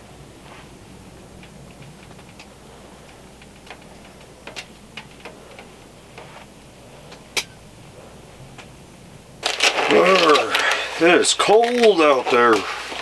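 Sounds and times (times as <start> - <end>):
faint low hum: 0.0 - 13.0
sharp clicks and pops: 1.3 - 6.5, 8.6 - 13.0.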